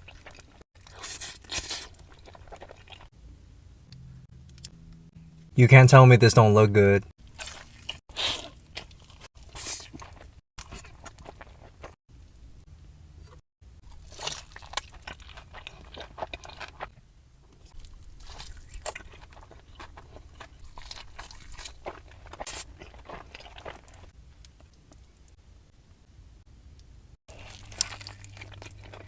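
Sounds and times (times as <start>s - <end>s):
crunchy chewing of fried chicken: 0.0s - 3.1s, 7.2s - 12.0s, 13.3s - 25.3s, 27.3s - 29.0s
faint low hum: 2.0s - 5.9s.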